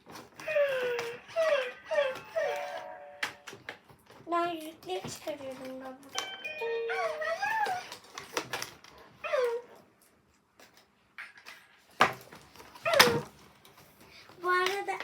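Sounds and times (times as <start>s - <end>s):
electronic puppy yelps and whimpers: 0.4s - 3.2s, 6.6s - 8.0s, 9.2s - 9.7s.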